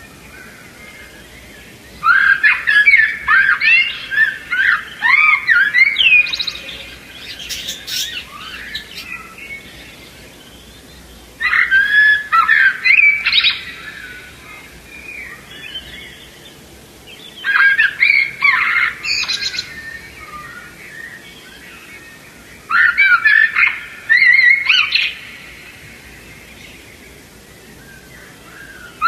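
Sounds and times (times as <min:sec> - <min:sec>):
budgerigars chirping: 0:06.0 - 0:12.4.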